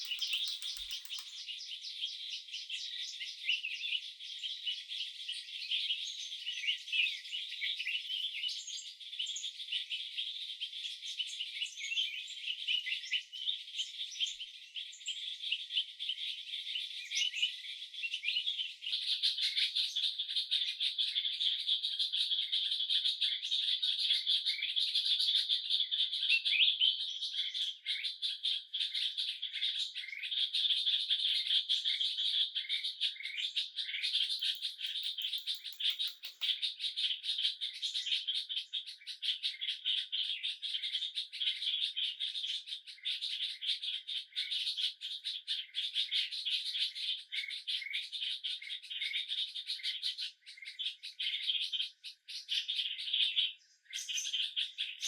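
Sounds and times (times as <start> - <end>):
birds chirping: 0.0 - 2.2, 32.6 - 40.5.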